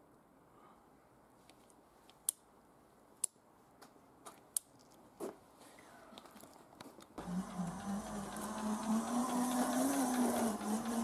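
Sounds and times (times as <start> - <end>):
sharp clicks and ticks: 7.2 - 11.0.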